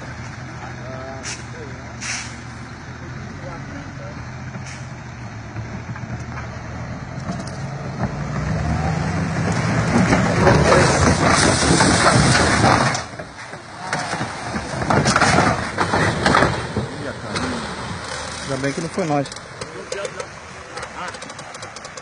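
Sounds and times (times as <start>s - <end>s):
heavy vehicle engine running: 0.0s - 22.0s
loud crunching scraping crash: 1.1s - 2.6s, 5.7s - 22.0s.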